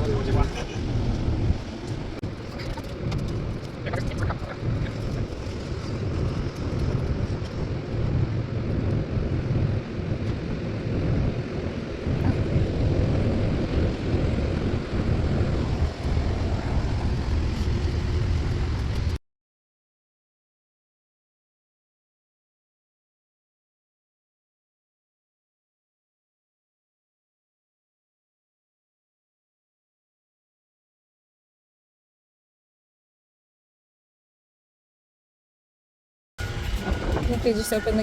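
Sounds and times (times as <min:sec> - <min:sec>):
low rumble: 0:00.0 - 0:19.2, 0:36.4 - 0:38.0
wind buffeting microphone: 0:00.0 - 0:19.2, 0:36.4 - 0:38.0.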